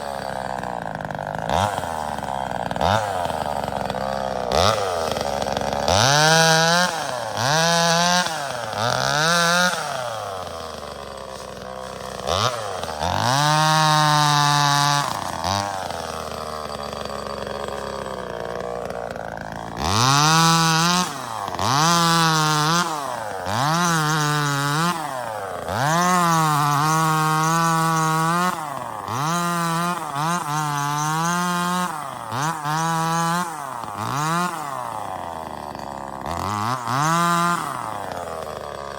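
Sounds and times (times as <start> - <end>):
chainsaw revving: 0.0 - 38.9.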